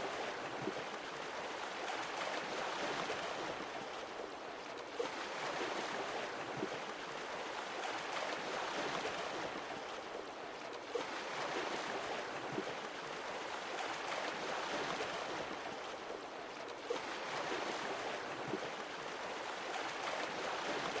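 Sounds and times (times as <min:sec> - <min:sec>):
small water splashes: 0:00.0 - 0:21.0.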